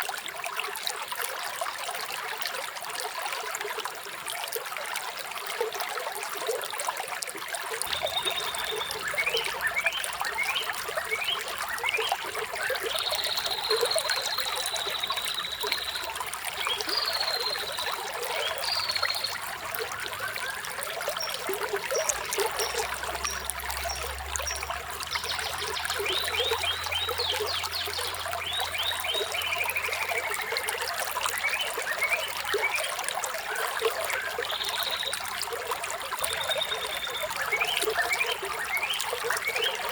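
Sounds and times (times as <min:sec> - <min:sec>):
water trickling: 0:00.0 - 0:39.9
birds chirping: 0:07.9 - 0:30.7.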